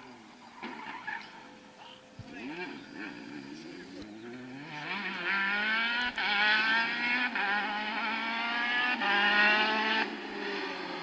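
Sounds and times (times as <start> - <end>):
rally car engine accelerating: 2.3 - 11.0.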